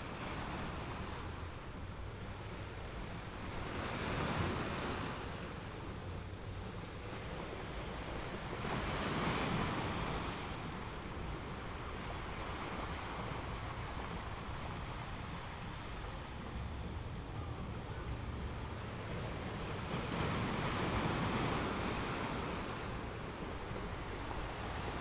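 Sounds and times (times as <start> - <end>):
sea surf washing in: 0.0 - 25.0.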